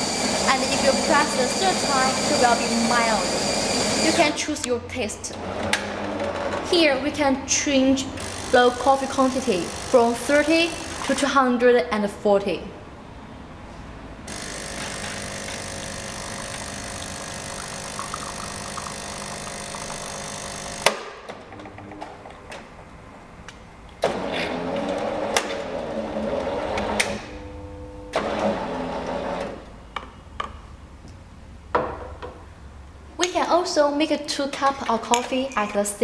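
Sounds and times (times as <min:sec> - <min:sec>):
coffee grinder running: 0:00.0 - 0:04.4, 0:10.7 - 0:11.1, 0:14.3 - 0:20.9
espresso pump running: 0:00.0 - 0:04.4, 0:08.2 - 0:11.1, 0:14.3 - 0:21.0.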